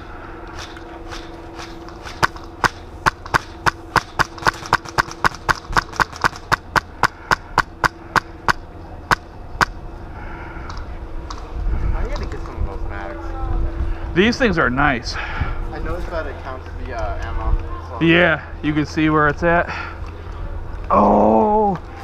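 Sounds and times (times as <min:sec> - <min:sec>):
airsoft rifle shots: 0:00.6 - 0:09.8.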